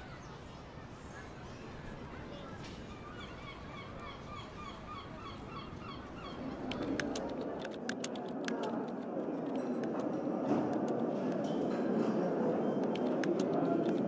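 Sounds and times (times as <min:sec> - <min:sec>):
low background murmur: 0:00.0 - 0:14.0
bird calling: 0:03.0 - 0:07.4
laptop keys clicking: 0:06.6 - 0:11.6, 0:12.7 - 0:14.0.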